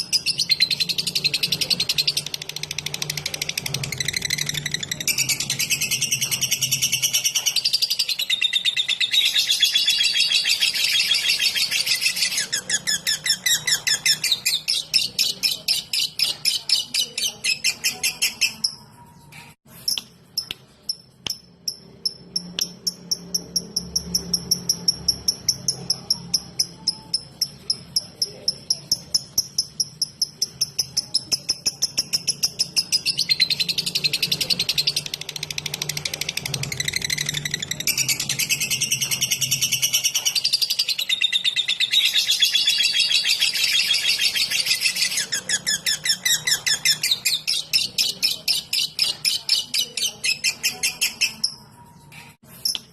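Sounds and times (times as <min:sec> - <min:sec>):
lovebird chattering: 0:19.8 - 0:51.7.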